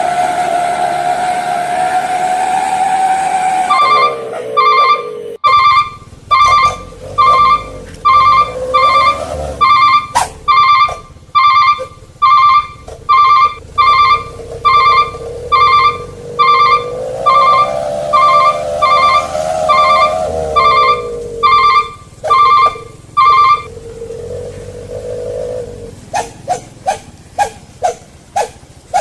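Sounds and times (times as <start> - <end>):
steady whining tone: 0.0 - 29.0
short electronic beeps: 3.7 - 23.7.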